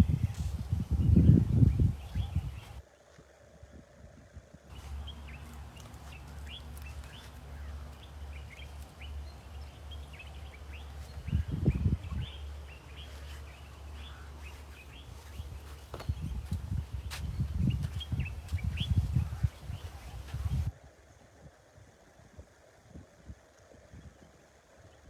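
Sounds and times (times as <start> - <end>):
small birds chirping: 0.0 - 3.2, 4.7 - 20.7
steady low rumble: 4.7 - 20.7.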